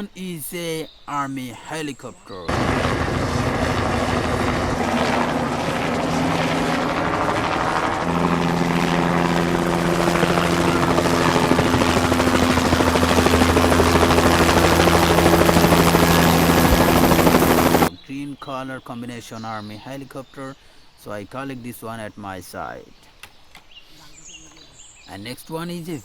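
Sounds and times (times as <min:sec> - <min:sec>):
helicopter running: 0:02.5 - 0:17.9.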